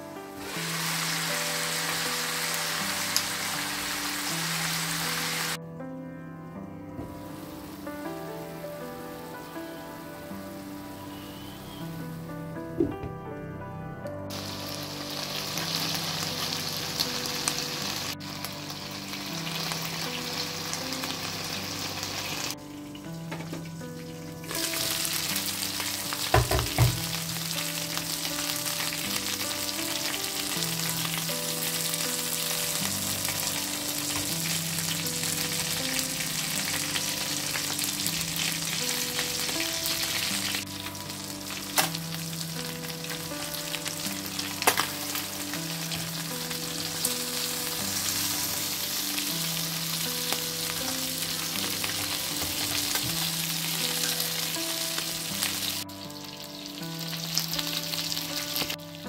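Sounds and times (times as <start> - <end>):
skewers sizzling in hot oil: 0.4 - 5.6, 14.3 - 59.0
pan knocking: 26.3 - 27.1.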